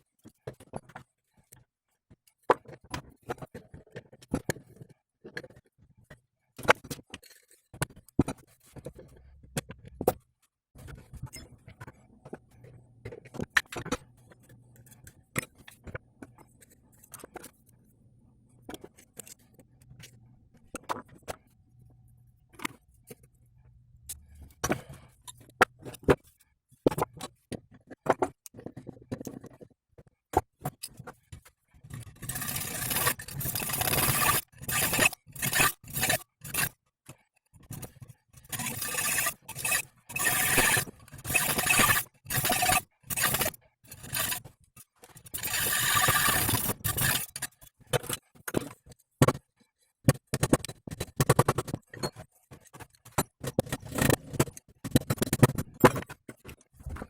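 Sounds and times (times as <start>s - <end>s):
rough scraping on metal: 32.0s - 36.8s, 38.5s - 44.5s, 45.2s - 47.5s.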